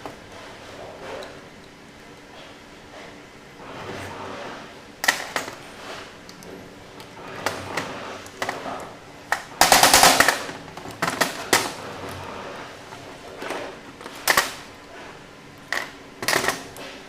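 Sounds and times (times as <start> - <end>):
rapid clicking burst: 9.6 - 10.5.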